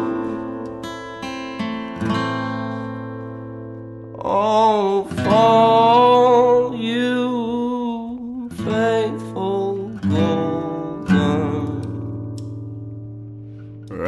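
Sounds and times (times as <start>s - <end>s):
acoustic guitar strumming: 0.0s - 14.0s
person singing with vibrato: 4.2s - 12.0s.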